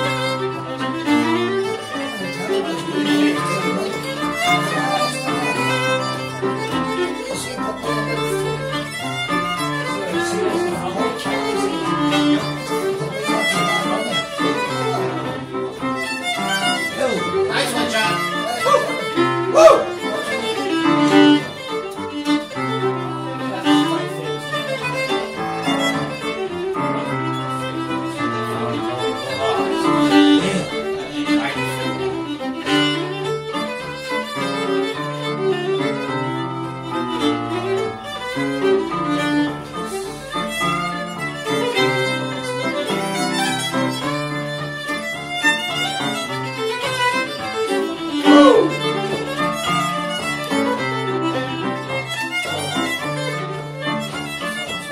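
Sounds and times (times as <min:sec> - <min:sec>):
fiddle playing a tune: 0:00.0 - 0:54.9.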